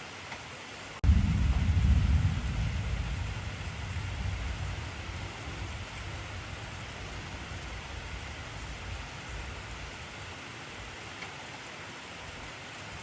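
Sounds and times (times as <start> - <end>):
heavy rain: 0.0 - 13.0
thunder rumbling: 1.0 - 10.4.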